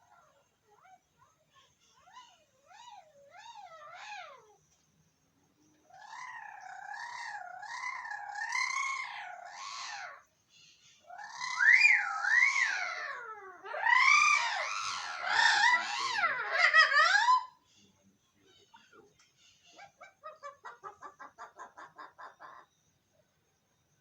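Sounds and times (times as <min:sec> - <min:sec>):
parrots calling: 0:01.9 - 0:04.6, 0:05.9 - 0:17.6.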